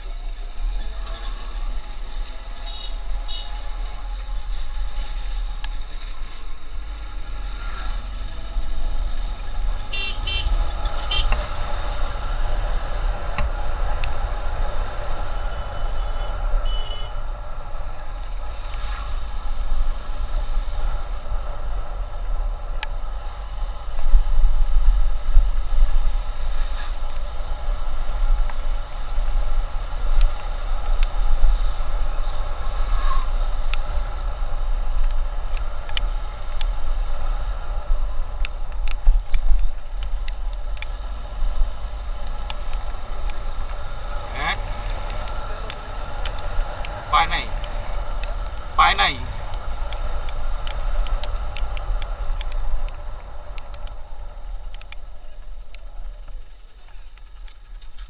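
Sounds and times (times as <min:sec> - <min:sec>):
traffic noise: 0:00.0 - 0:58.0
wind rumble on microphone: 0:00.0 - 0:58.0
vehicle horns tooting: 0:09.9 - 0:11.4, 0:15.4 - 0:17.2.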